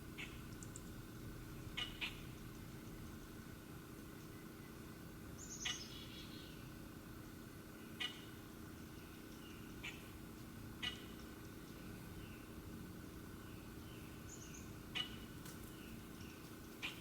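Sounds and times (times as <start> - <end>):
faint steady hum: 0.0 - 17.0
bird chip calls: 1.8 - 2.4, 5.4 - 6.6, 7.8 - 10.1, 10.8 - 12.5, 13.8 - 17.0.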